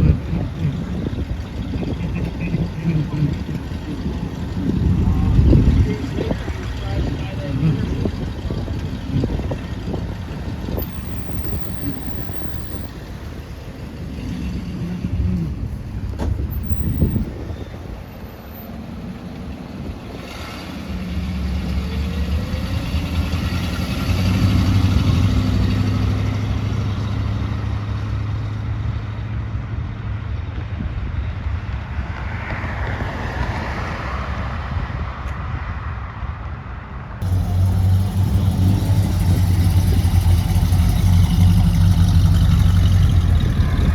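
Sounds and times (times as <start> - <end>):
car engine idling: 0.0 - 27.1, 37.2 - 43.9.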